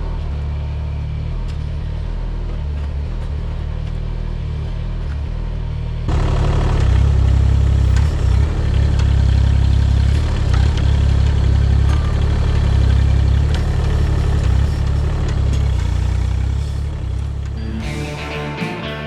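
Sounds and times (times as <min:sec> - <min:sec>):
excavator diesel engine running: 0:06.1 - 0:19.0.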